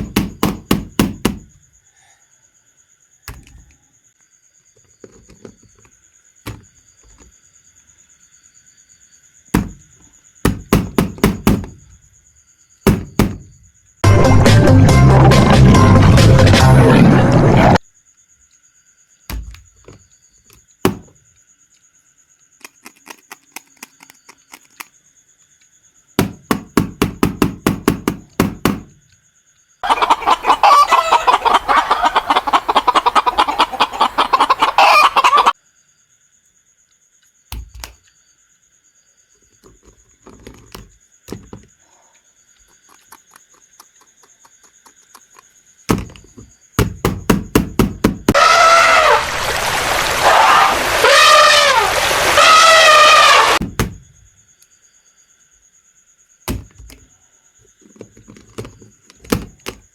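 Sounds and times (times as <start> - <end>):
chickens clucking and cackling: 29.8 - 35.6.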